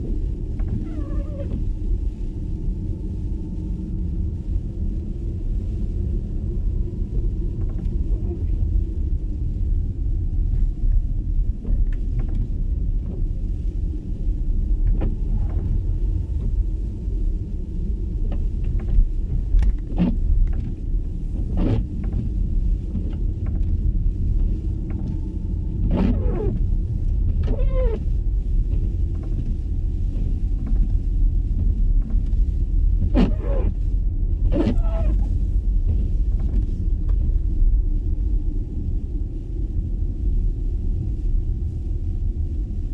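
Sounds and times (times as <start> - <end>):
tyre and road rumble: 24.9 - 37.4.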